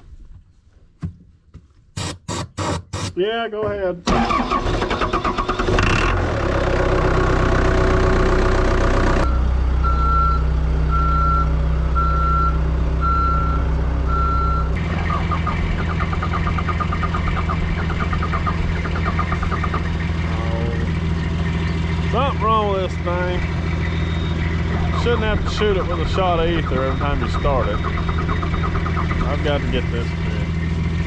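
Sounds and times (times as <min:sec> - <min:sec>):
diesel engine cranking and running: 0:04.0 - 0:31.0
repeating beep: 0:23.1 - 0:30.6.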